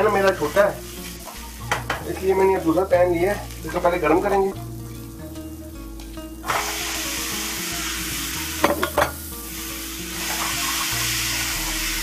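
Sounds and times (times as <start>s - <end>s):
tomatoes sizzling in oil: 0.0s - 12.0s
sharp knocks against pan: 1.7s - 2.1s, 8.6s - 9.2s.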